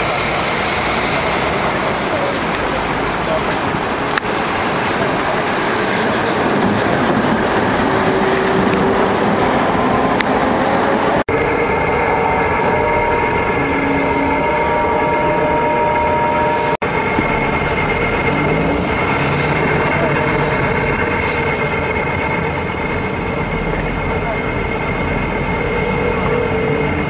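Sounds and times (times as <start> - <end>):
tram and street traffic rumble: 0.0 - 27.0
hum of held tones: 11.3 - 16.7.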